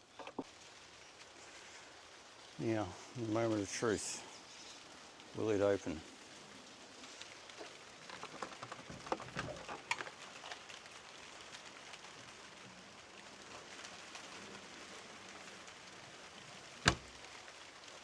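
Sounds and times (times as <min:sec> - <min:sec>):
faint steady hiss: 0:00.0 - 0:18.0
fridge door clicks and knocks: 0:16.9 - 0:17.1.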